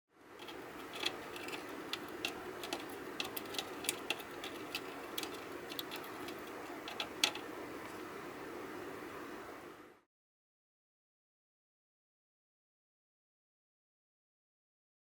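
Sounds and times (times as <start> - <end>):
low steady hum: 0.1 - 10.1
light clicks and taps: 0.4 - 8.0.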